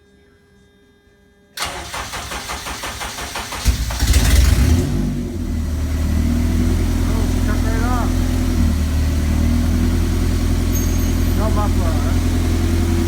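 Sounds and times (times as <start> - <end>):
starter motor cranking: 1.6 - 4.9
car engine starting and idling: 1.6 - 13.0.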